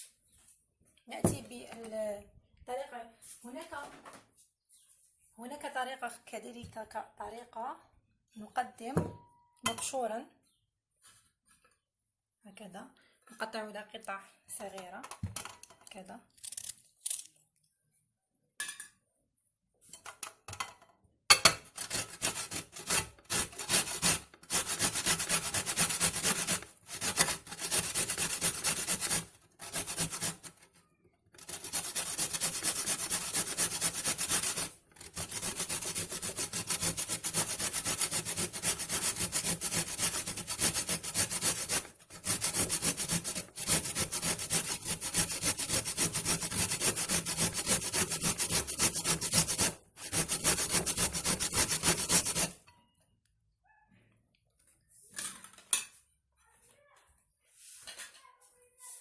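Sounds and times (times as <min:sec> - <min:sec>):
beetroot rasping on grater: 0:21.8 - 0:30.6, 0:31.4 - 0:52.6.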